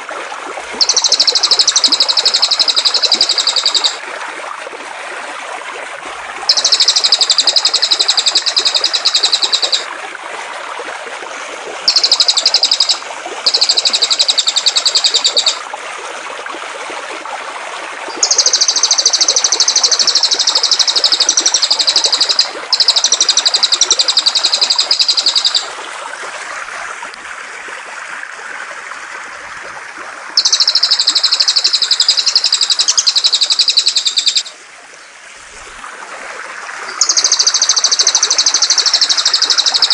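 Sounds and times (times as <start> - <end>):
flowing water rushing: 0.0 - 39.9
songbird buzzy trill: 0.8 - 4.0, 6.5 - 9.9, 11.9 - 15.6, 18.2 - 25.7, 30.4 - 34.6, 37.0 - 39.9.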